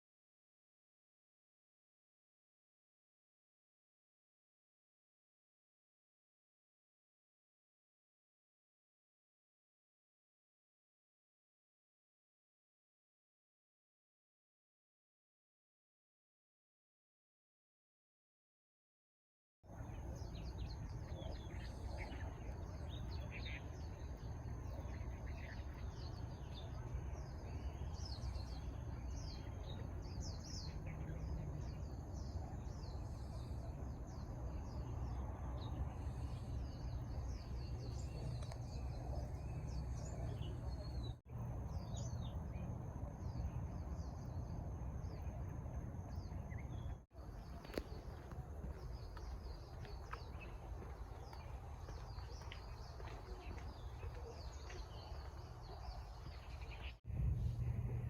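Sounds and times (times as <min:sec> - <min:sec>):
low outdoor rumble: 0:19.7 - 0:58.0
small birds chirping: 0:19.7 - 0:58.0.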